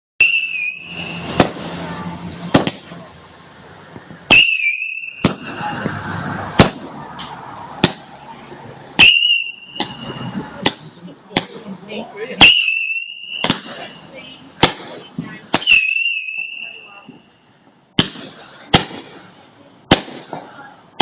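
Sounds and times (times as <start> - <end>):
high whistles: 0.2 - 1.4, 4.3 - 6.3, 9.0 - 10.4, 12.4 - 14.0, 15.6 - 17.3
fireworks bangs: 0.2 - 3.1, 4.2 - 8.2, 9.0 - 17.3, 17.9 - 21.0
fireworks crackle: 0.2 - 3.6, 4.3 - 8.3, 9.0 - 17.3, 17.9 - 21.0.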